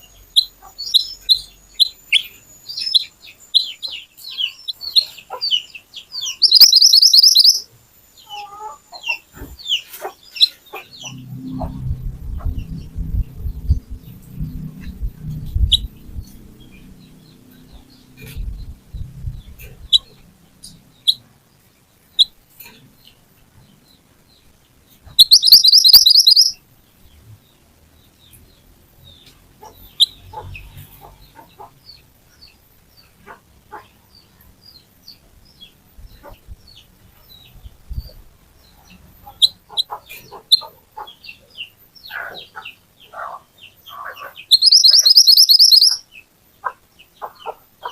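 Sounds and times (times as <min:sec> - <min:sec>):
bird trill: 0:00.0 - 0:21.3, 0:25.0 - 0:26.6, 0:43.8 - 0:46.2
songbird chirping: 0:00.0 - 0:47.9.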